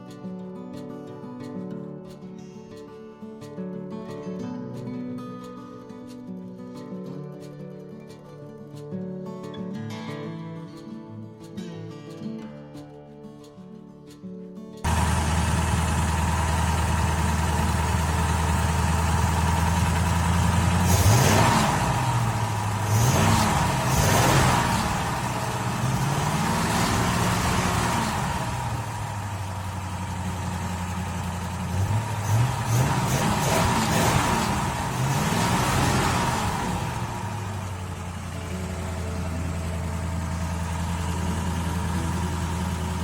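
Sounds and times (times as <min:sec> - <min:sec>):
car engine idling and revving: 0:14.9 - 0:43.0.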